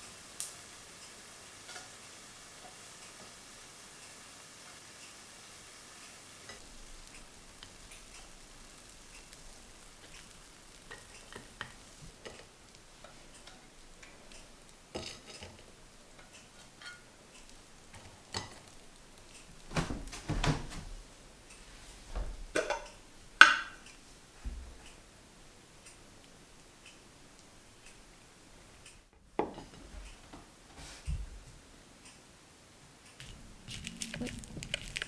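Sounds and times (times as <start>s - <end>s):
dishes clattering: 22.4s - 23.8s
dishes and cutlery clicking: 22.5s - 23.9s.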